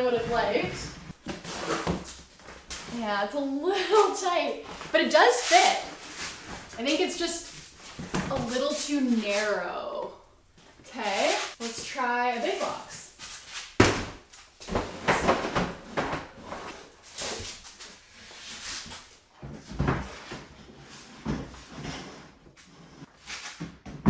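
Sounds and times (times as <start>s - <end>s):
bin scraping on wooden rungs: 0.0s - 9.7s.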